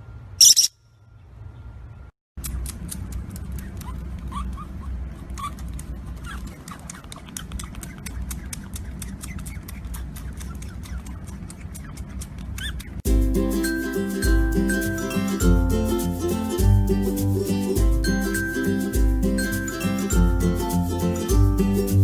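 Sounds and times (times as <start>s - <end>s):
small animal chirps: 0.4s - 0.8s, 6.2s - 13.0s
quick clicks: 5.6s - 13.0s.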